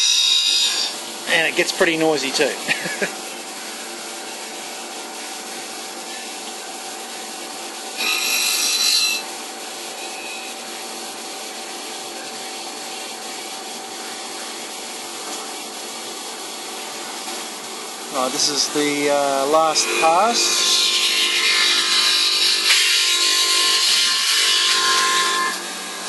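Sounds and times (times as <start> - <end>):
high-pitched machining burst: 0.0 - 1.0
milling machine cutting: 0.0 - 3.1, 18.0 - 26.0.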